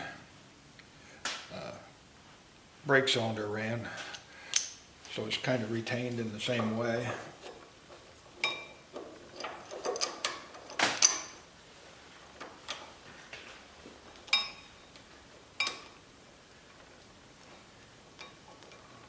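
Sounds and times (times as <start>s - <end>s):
metal parts clinking and knocking: 6.6s - 11.4s.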